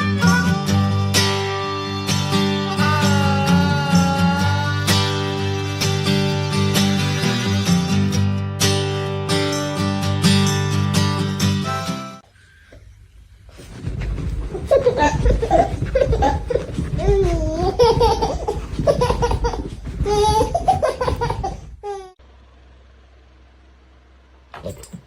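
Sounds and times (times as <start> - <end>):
high-pitched laughter: 14.5 - 22.2.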